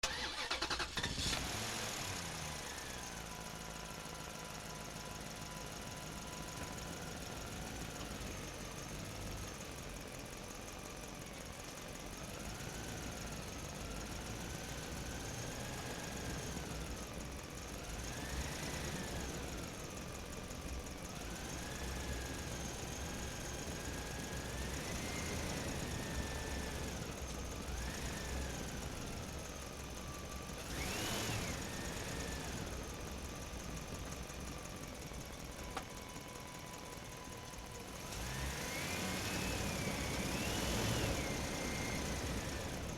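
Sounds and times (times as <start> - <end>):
toy truck electric motor whining: 0.0 - 1.5
drivetrain and tyres rumbling: 0.0 - 42.9.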